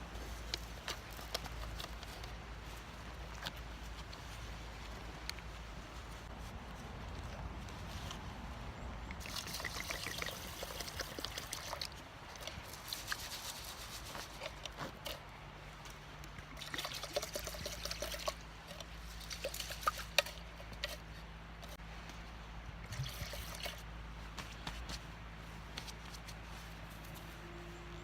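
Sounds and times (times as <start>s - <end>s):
light clicks and rustles: 0.1s - 9.2s
water pouring and trickling: 9.0s - 15.2s, 16.4s - 21.1s, 22.8s - 23.8s.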